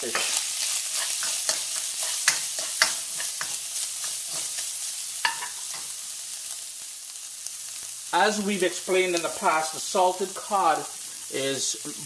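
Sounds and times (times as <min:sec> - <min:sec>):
fish sizzling in a wok: 0:00.0 - 0:12.0
spoon scraping and clicking on pan: 0:00.2 - 0:05.9.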